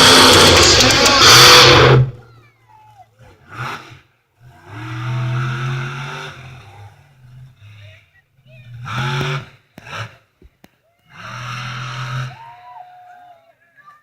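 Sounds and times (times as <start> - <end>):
truck engine revving: 0.0 - 2.2, 3.2 - 7.8, 8.6 - 10.3, 11.1 - 12.4.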